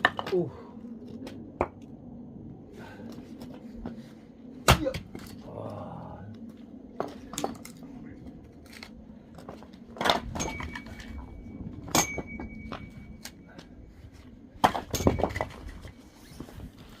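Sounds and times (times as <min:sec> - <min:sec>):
axe striking log with metallic ring: 0:11.9 - 0:12.8.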